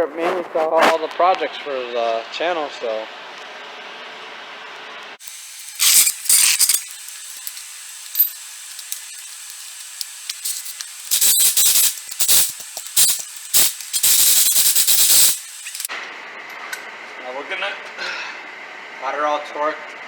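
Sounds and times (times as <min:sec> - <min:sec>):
pneumatic impact wrench bursts: 0:05.2 - 0:15.9.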